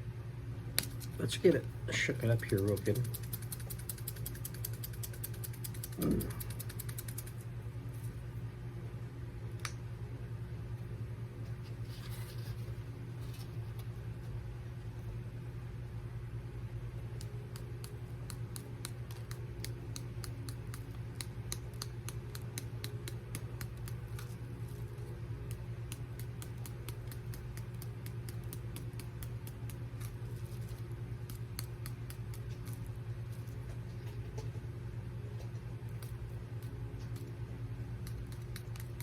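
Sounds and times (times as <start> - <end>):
steady low hum: 0.0 - 39.0
pepper flakes shaken from container: 2.1 - 7.5.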